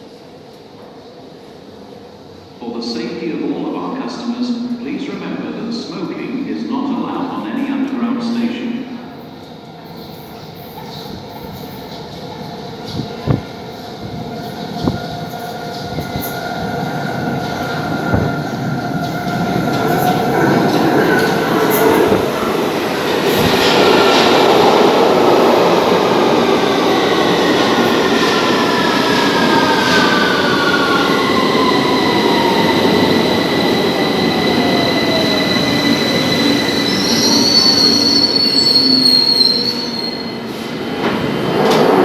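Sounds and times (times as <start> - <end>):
brake and wheel squeal: 36.9 - 40.4.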